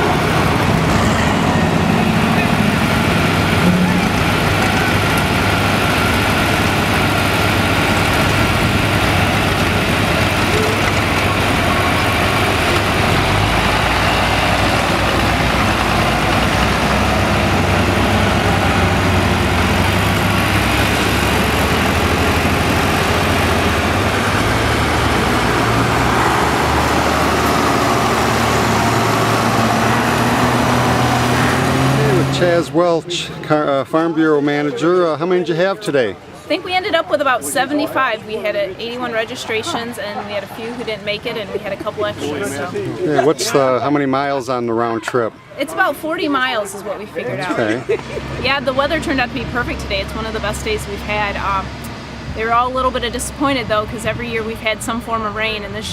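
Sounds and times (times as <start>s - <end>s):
tractor engines running: 0.0s - 55.9s.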